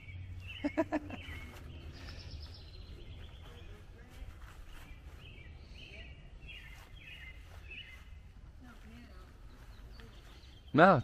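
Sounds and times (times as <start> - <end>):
bird trill: 0.0 - 3.8
birds chirping: 0.0 - 11.0.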